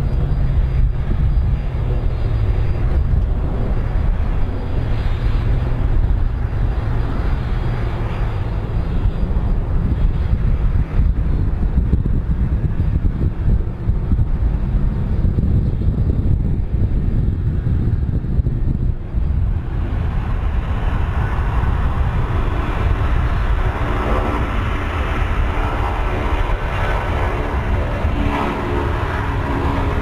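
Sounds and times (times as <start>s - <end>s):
aircraft engine rumble: 0.0s - 30.0s
hissing roar: 19.5s - 30.0s.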